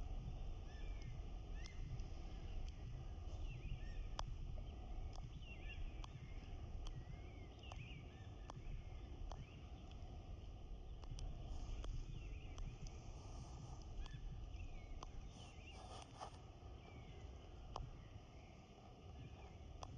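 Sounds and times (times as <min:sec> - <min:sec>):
low outdoor rumble: 0:00.0 - 0:19.9
small birds chirping: 0:00.0 - 0:19.9
sharp tick: 0:04.0 - 0:04.3, 0:06.8 - 0:07.0, 0:11.0 - 0:13.0.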